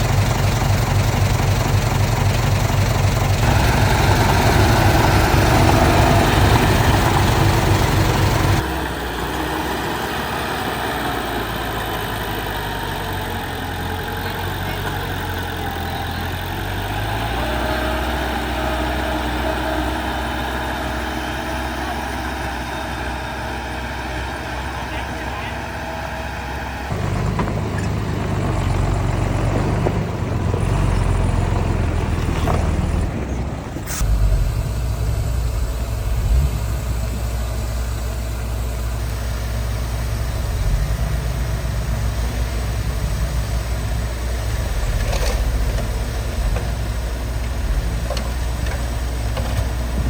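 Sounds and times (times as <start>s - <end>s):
heavy diesel machinery engine: 0.0s - 50.0s.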